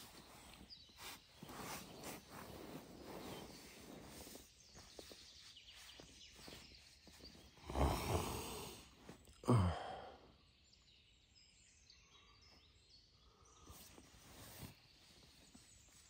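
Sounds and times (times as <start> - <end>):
person snoring: 7.6 - 10.2.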